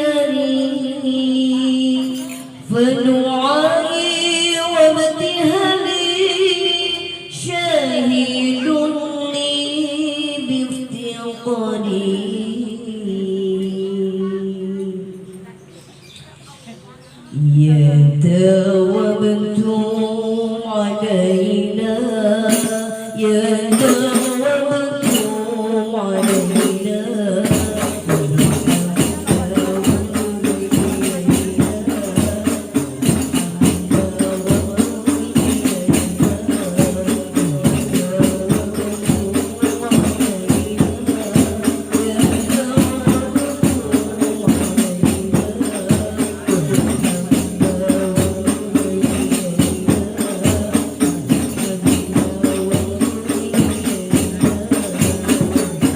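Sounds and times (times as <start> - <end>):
frame drums playing: 22.4 - 55.9.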